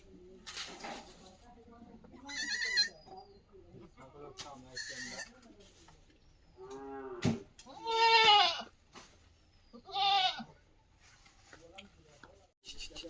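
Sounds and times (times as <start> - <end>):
goats bleating: 7.7 - 8.7, 9.8 - 10.5.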